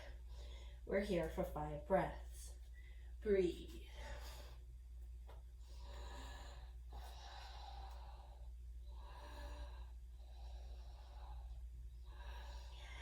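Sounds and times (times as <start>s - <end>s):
slow breathing: 0.0s - 1.0s, 2.6s - 3.2s, 3.8s - 13.0s
steady low hum: 0.0s - 13.0s.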